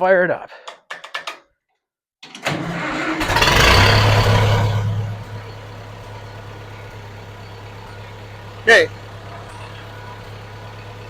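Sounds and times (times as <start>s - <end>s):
tractor engine starter cranking: 2.2s - 8.0s
tractor engine idling: 2.4s - 11.0s.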